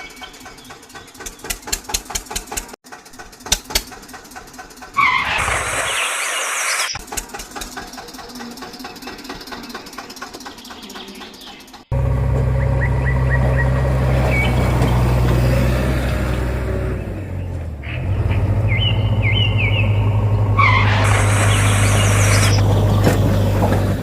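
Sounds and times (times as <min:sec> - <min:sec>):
vehicle engine drone: 0:00.0 - 0:24.0
loud hiss: 0:05.2 - 0:07.0, 0:20.8 - 0:22.7.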